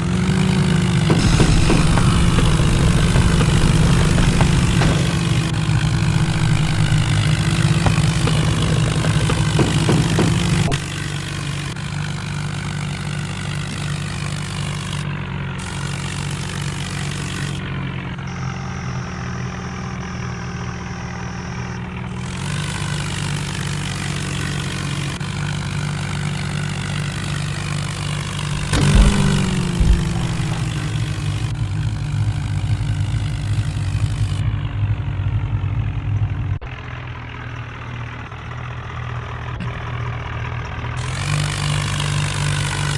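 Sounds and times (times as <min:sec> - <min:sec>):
diesel engine running: 0:00.0 - 0:42.9
sharp knocks: 0:01.0 - 0:10.8, 0:28.6 - 0:31.5.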